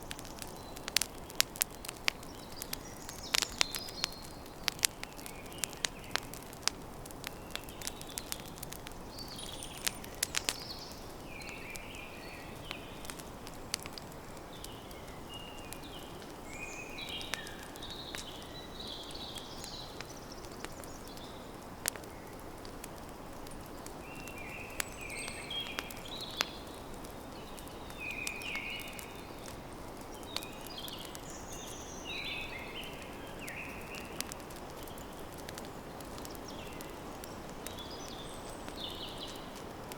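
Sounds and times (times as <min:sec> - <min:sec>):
campfire crackling and popping: 0:00.0 - 0:39.9
small birds chirping: 0:00.0 - 0:39.9.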